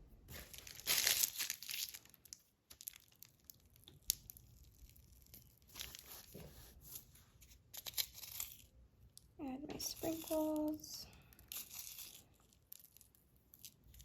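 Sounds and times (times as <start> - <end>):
packaging crinkling: 0.3 - 6.4, 10.0 - 14.0.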